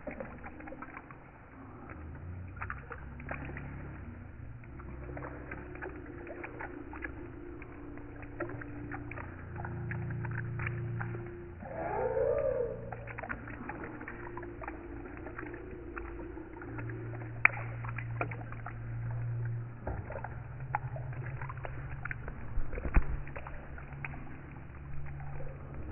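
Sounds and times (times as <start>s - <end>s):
low hum: 0.0s - 25.9s
rain drops dripping: 0.0s - 25.9s.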